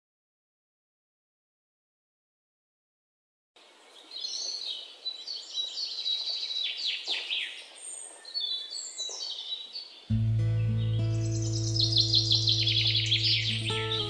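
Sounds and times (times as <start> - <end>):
birds chirping and calling: 3.9 - 14.0.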